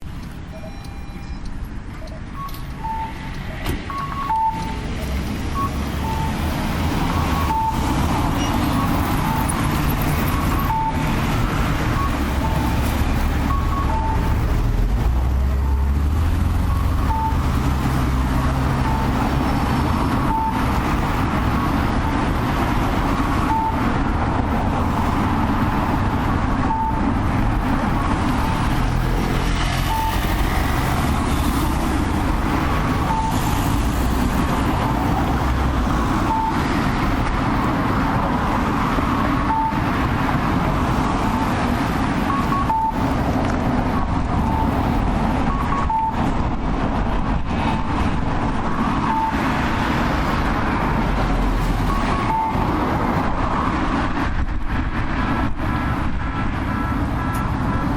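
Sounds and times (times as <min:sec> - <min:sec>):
road traffic rumble: 0:00.0 - 0:57.9
electronic cuckoo crossing tones: 0:00.5 - 0:04.9, 0:13.5 - 0:14.3, 0:16.7 - 0:17.5, 0:33.0 - 0:33.5, 0:42.3 - 0:43.0, 0:45.5 - 0:46.2.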